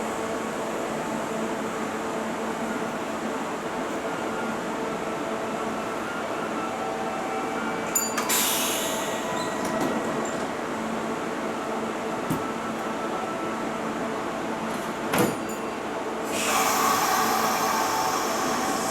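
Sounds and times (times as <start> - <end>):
electric train hum and whine: 0.0 - 18.9
hissing air burst: 16.3 - 18.9.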